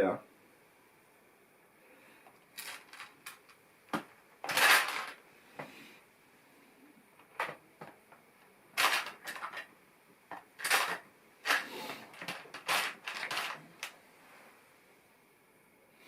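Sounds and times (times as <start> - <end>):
plastic pieces clattering: 2.6 - 5.2, 8.8 - 9.7, 10.3 - 14.0.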